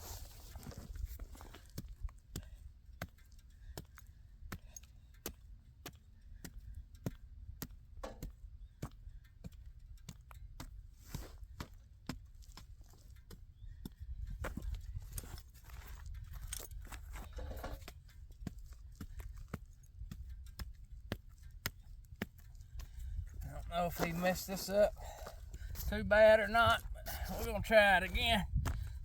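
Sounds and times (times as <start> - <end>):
sharp knocks and clicks: 7.6 - 8.4.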